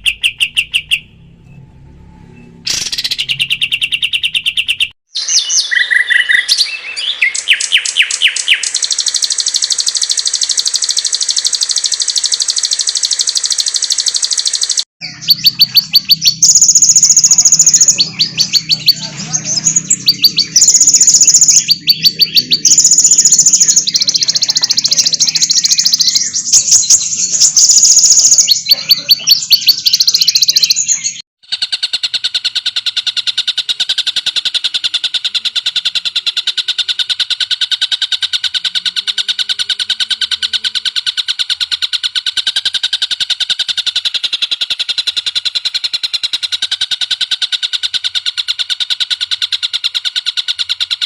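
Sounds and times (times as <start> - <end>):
bird steady rapid trill: 0.0 - 1.2, 2.3 - 51.0
low hum: 0.9 - 3.7
songbird fast high trills: 14.4 - 30.6.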